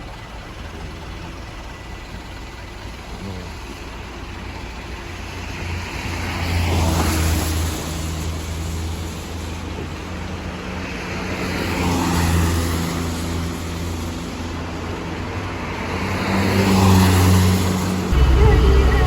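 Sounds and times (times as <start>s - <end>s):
truck engine running: 0.0s - 11.3s, 16.9s - 19.0s
road and tyre noise: 0.0s - 19.0s.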